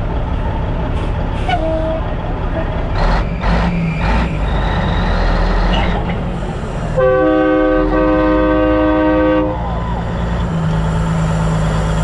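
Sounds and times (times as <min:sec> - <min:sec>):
heavy engine rumbling: 0:00.0 - 0:12.0
multi-note air horn: 0:07.0 - 0:09.6.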